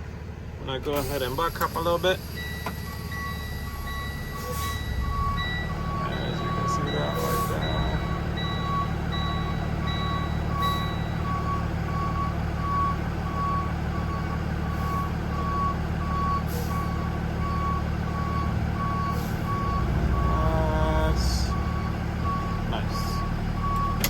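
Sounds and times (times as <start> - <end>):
truck engine running: 0.0 - 24.0
truck backup alarm beeping: 1.0 - 24.0
higher-pitched beep: 2.4 - 11.4.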